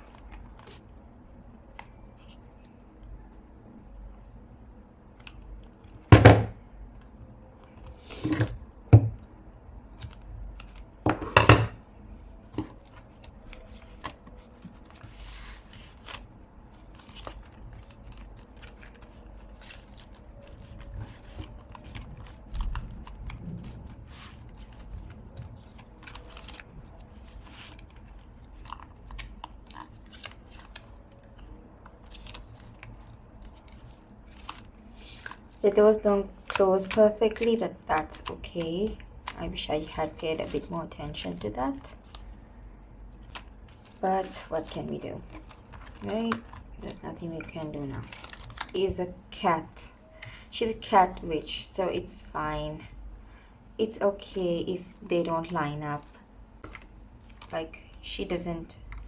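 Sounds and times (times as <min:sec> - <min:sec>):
paper rustling and crinkling: 0:00.0 - 0:00.9, 0:09.9 - 0:11.0, 0:12.4 - 0:49.2, 0:56.0 - 0:58.1, 0:58.8 - 0:59.0.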